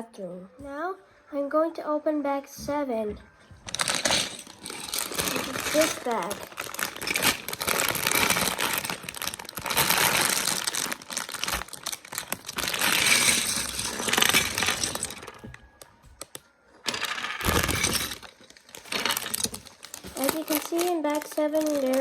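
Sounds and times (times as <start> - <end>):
plastic bag tearing and crinkling: 3.7 - 15.5, 16.9 - 22.0
plastic bricks clicking: 3.7 - 22.0.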